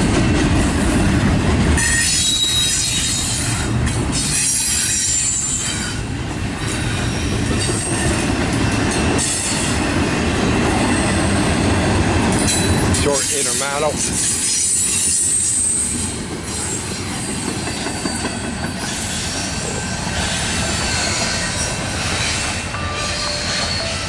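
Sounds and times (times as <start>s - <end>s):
steel wheels rumbling on rails: 0.0s - 24.0s
high-pitched wheel squeal: 1.8s - 3.6s, 17.7s - 24.0s.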